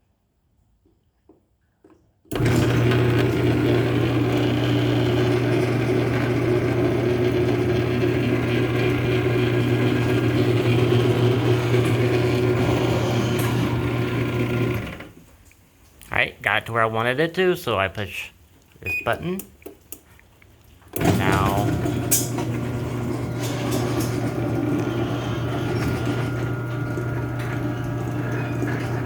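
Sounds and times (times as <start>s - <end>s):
garage door opener motor humming: 2.3s - 15.2s, 20.9s - 29.0s.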